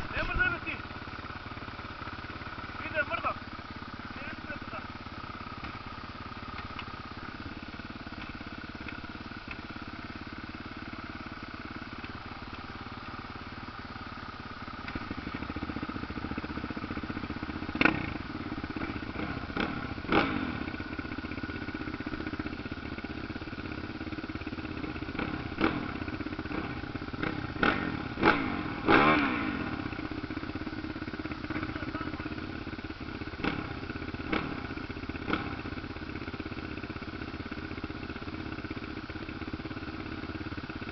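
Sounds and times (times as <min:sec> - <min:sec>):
dirt bike engines droning: 0:00.0 - 0:40.9
dirt bike revving hard: 0:17.7 - 0:20.7, 0:24.8 - 0:30.0, 0:33.4 - 0:35.6.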